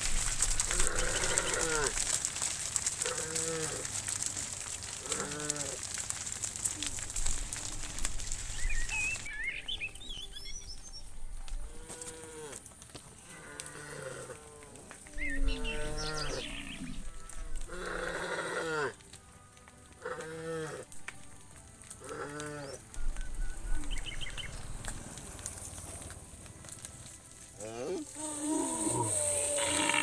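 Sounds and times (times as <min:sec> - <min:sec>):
cattle mooing: 0:00.6 - 0:02.0, 0:04.9 - 0:05.9, 0:11.6 - 0:12.6, 0:13.3 - 0:14.8, 0:15.5 - 0:19.0, 0:20.0 - 0:20.9, 0:22.0 - 0:22.9.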